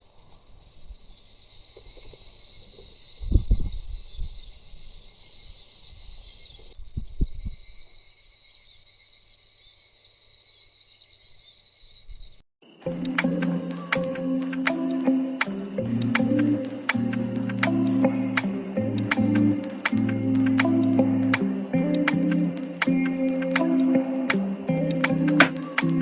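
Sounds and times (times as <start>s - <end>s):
insects chirring: 0.0s - 26.0s
low rumbles on microphone: 3.2s - 4.4s.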